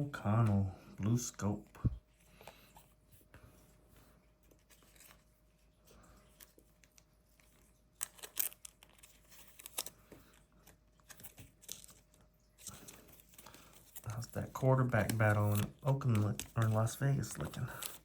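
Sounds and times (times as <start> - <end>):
foil wrappers crinkling and tearing: 8.0 - 18.0.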